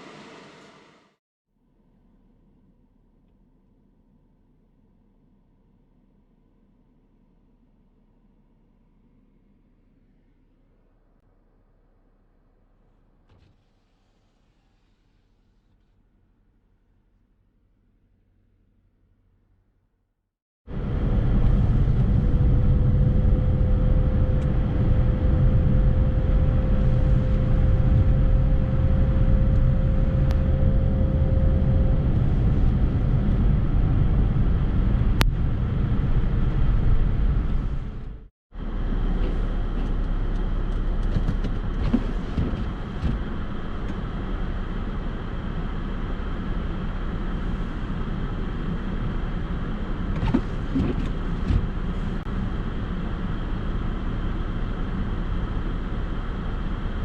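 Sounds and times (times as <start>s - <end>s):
vehicle driving rumble: 20.7s - 57.0s.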